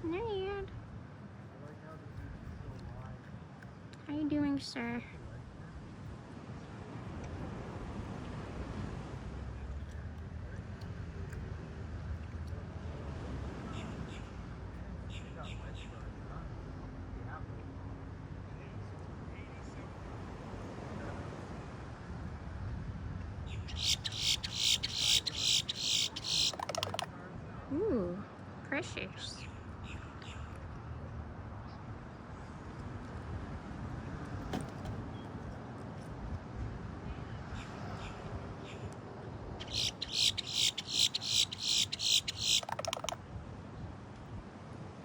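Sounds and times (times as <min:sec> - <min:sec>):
low background noise: 0:23.4 - 0:37.6, 0:39.1 - 0:45.0
bird screechy calls: 0:23.7 - 0:27.1, 0:39.6 - 0:43.2.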